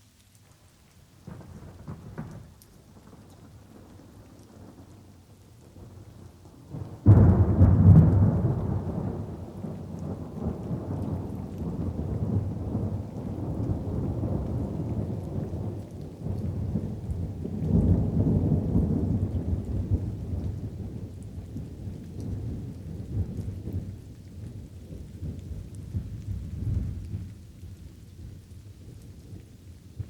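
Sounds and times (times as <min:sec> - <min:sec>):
light rain: 0:00.0 - 0:30.0
rumble of thunder: 0:01.2 - 0:30.0
loud thunderclap: 0:07.0 - 0:15.7.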